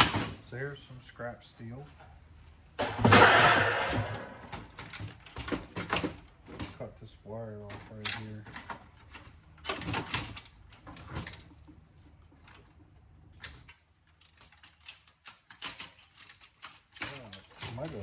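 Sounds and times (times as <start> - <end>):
sheet metal parts clattering: 2.8 - 6.9, 13.4 - 18.0.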